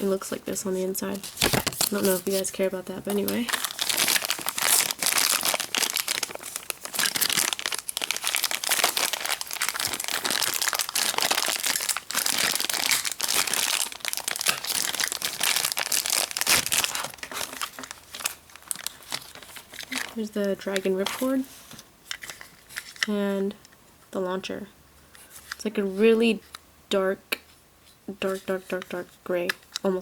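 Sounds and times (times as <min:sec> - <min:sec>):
plastic packaging crinkling: 0:00.0 - 0:23.1.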